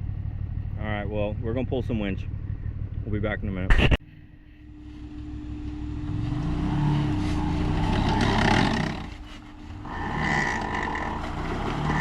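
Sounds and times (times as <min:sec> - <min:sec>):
buggy engine revving: 0:04.8 - 0:12.0.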